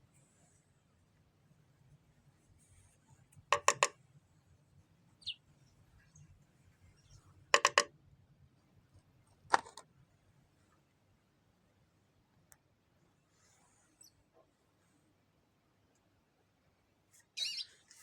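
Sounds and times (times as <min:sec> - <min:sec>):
bird pecking on window glass: 0:03.6 - 0:04.0, 0:07.6 - 0:07.9
faint bird chirp: 0:05.2 - 0:07.2, 0:13.8 - 0:14.3, 0:17.2 - 0:18.0.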